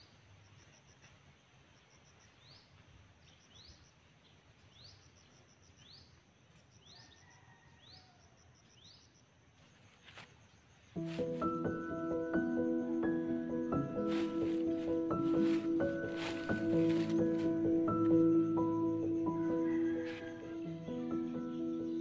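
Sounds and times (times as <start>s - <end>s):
insects chirping: 0.0s - 22.0s
birds chirping: 11.0s - 22.0s.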